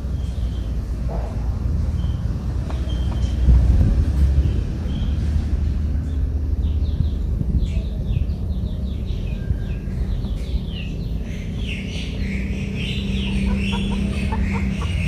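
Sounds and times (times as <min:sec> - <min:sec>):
birds chirping: 0:00.0 - 0:15.0
steady low hum: 0:00.0 - 0:15.0
steady low rumble: 0:00.0 - 0:15.0.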